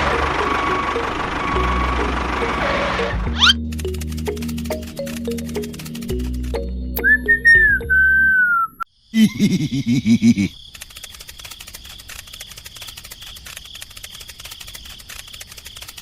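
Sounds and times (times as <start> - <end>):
crickets chirring: 8.8 - 16.0.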